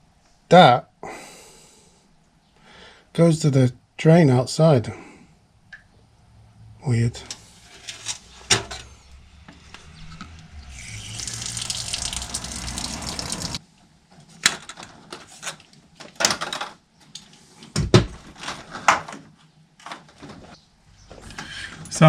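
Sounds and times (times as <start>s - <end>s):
water running from a tap: 10.7s - 13.6s.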